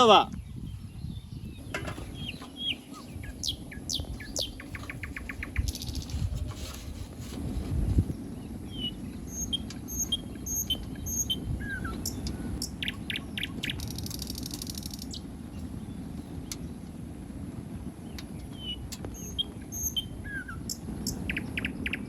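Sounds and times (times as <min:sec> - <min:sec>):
birds chirping: 0:00.0 - 0:07.1, 0:07.9 - 0:17.1, 0:17.7 - 0:22.0
low steady rumble: 0:00.0 - 0:22.0
buzzy bird trill: 0:02.1 - 0:06.3, 0:08.2 - 0:15.7, 0:18.6 - 0:22.0.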